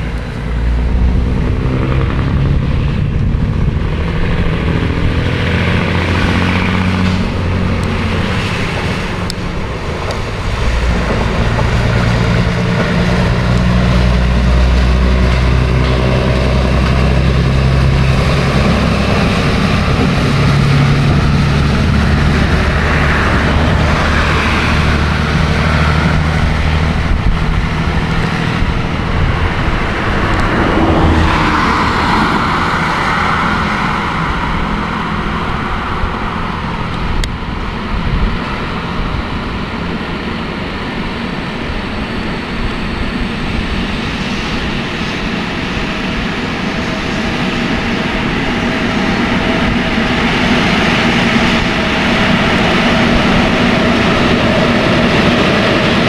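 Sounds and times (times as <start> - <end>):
freight wagons rumbling past: 0.0 - 42.4
diesel engine droning: 0.0 - 56.0.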